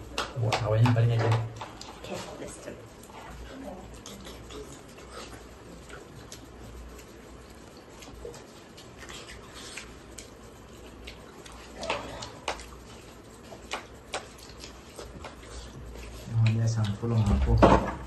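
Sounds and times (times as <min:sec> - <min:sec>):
mouths chewing food: 0:00.0 - 0:17.6
wet clicks and lip smacks: 0:03.9 - 0:17.0.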